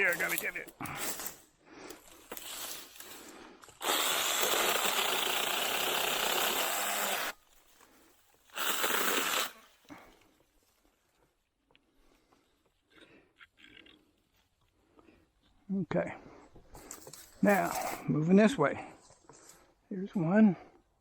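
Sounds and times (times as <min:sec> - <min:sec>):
mini chainsaw cutting sapling: 0:03.7 - 0:07.4, 0:08.5 - 0:10.1.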